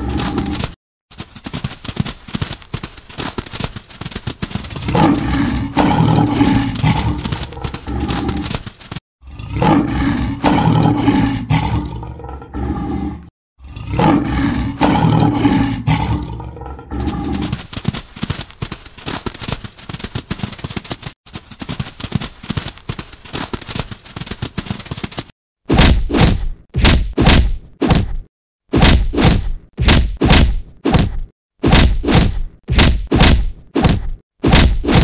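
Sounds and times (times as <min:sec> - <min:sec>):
lion roaring: 0:00.0 - 0:00.8, 0:04.6 - 0:08.6, 0:09.2 - 0:17.6
quick quiet thuds: 0:25.7 - 0:35.0.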